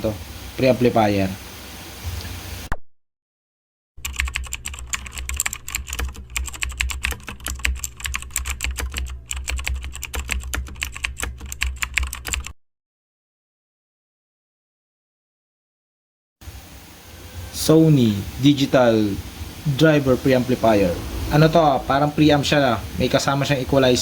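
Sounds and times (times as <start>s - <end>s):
steady low hum: 16.5s - 24.0s.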